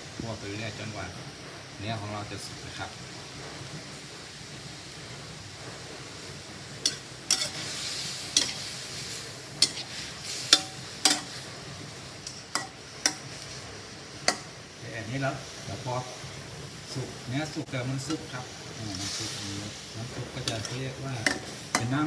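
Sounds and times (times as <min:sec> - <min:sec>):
meat sizzling in a pan: 0:00.0 - 0:22.0
spatula scraping a pan: 0:06.7 - 0:14.6, 0:18.0 - 0:22.0.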